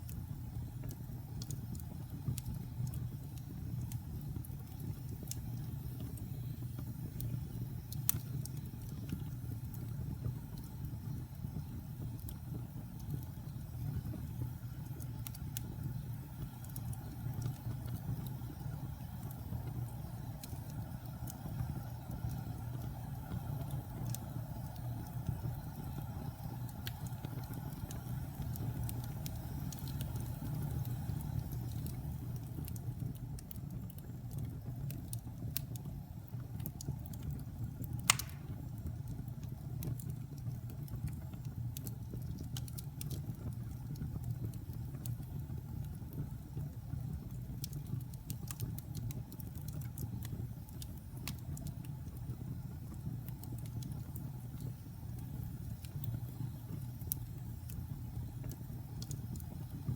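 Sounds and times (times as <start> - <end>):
fire crackling: 0.0 - 59.9
fire rumbling: 0.0 - 59.9
loud sharp pop: 38.1 - 38.6.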